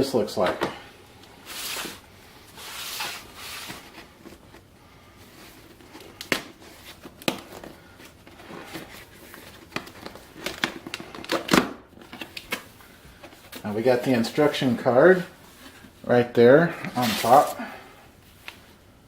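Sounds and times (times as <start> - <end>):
cardboard and paper crinkling: 16.7 - 18.7.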